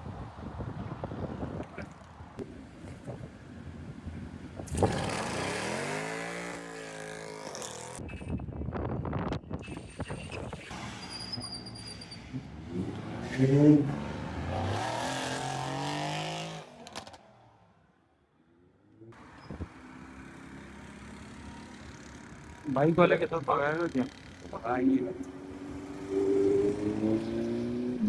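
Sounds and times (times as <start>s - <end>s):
sports car engine revving: 25.4s - 28.0s.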